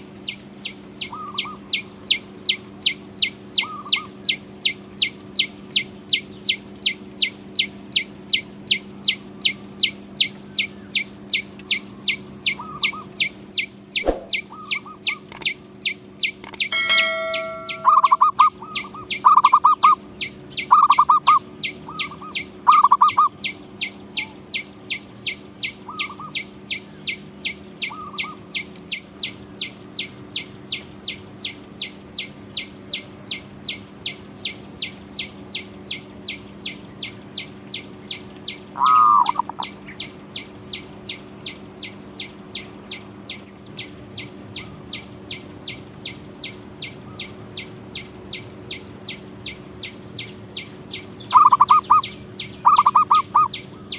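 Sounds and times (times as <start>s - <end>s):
high falling bird chirp: 16.4s - 18.4s.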